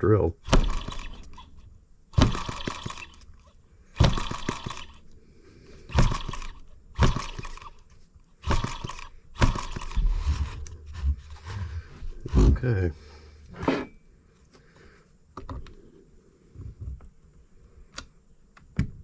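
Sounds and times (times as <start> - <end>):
engine firing unevenly: 0.0 - 13.9.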